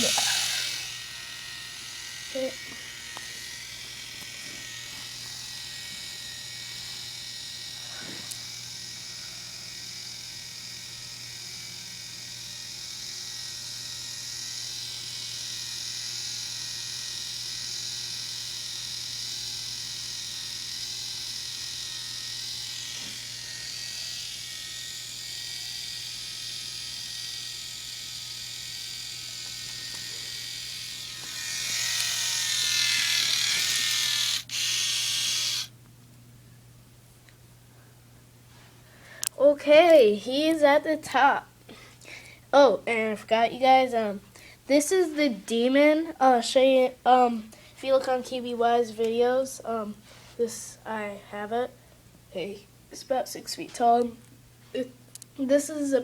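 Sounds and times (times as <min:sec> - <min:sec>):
small electric motor whine: 0:00.0 - 0:35.8.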